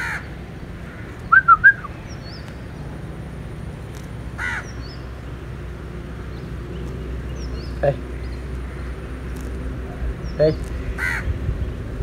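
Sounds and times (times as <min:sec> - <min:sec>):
crow cawing: 0:00.0 - 0:00.3, 0:04.4 - 0:04.7, 0:10.9 - 0:11.3
bird whistled notes: 0:01.3 - 0:01.9.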